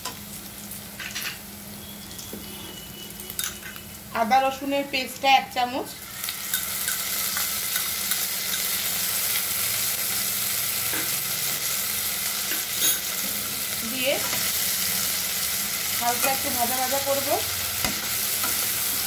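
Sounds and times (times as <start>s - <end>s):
paste sizzling in hot oil: 5.9s - 19.0s.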